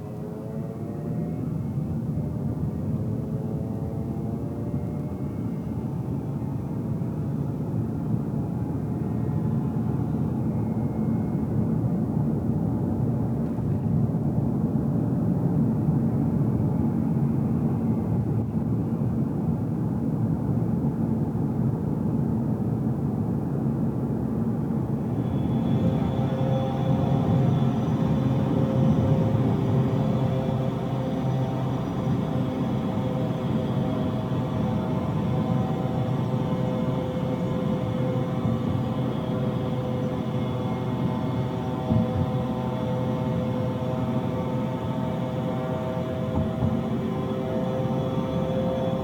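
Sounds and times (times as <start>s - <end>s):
faint high whine: 24.4s - 49.0s.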